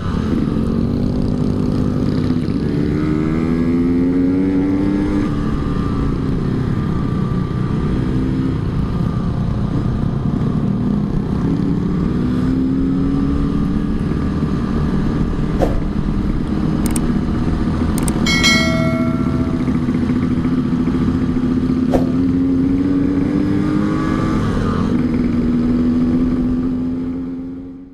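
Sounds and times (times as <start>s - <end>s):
motorcycle engine running: 13.6s - 27.6s
low wind rumble: 13.8s - 23.4s.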